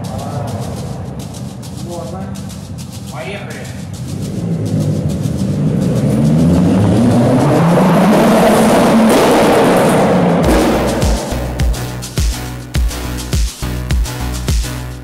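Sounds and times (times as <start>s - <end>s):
dance music with kick drum: 0.0s - 15.0s
car engine revving: 3.7s - 12.7s.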